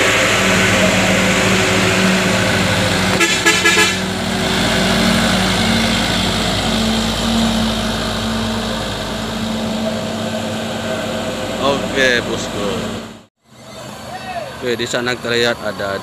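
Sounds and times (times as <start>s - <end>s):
vehicle engine running: 0.0s - 13.3s
vehicle horn toots: 2.8s - 4.2s.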